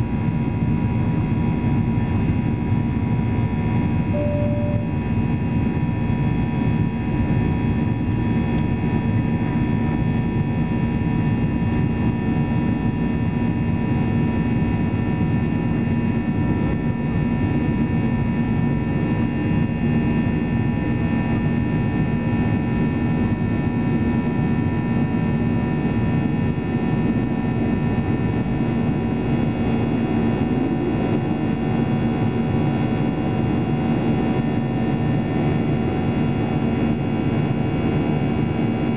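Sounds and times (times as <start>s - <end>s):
jet engine and airflow noise in cabin: 0.2s - 38.9s
constant hums: 4.2s - 5.4s.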